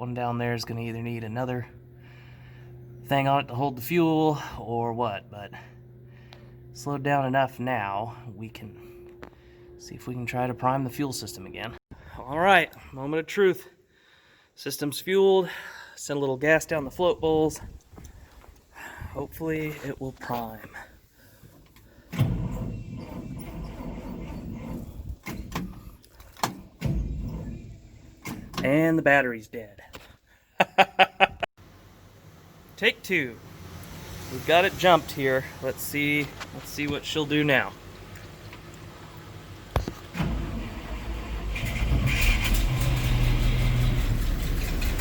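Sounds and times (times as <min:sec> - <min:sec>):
engine starter cranking: 0:21.4 - 0:28.8, 0:39.8 - 0:45.0
starter cranking engine: 0:40.1 - 0:45.0.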